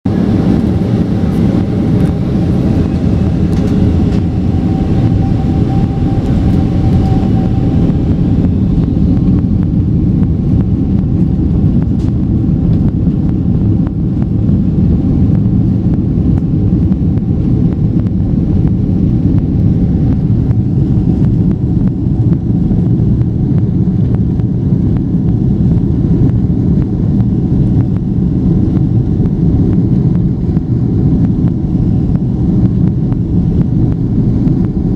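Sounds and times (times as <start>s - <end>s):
jet engines rumbling: 0.0s - 34.9s.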